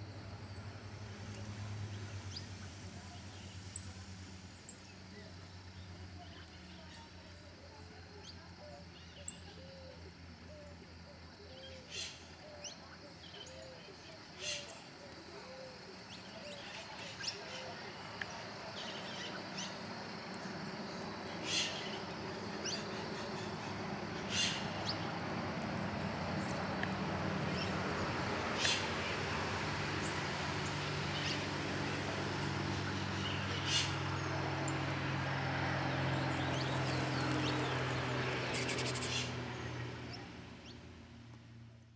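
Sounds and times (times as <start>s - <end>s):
small birds chirping: 1.3s - 25.2s, 28.5s - 29.3s, 35.8s - 40.9s.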